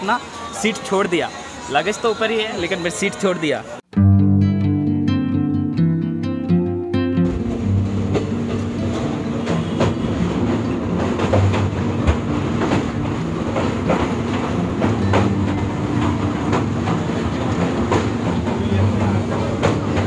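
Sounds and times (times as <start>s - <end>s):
wheel clacks over rail joints: 7.4s - 20.0s
train rumble and clatter: 7.5s - 20.0s.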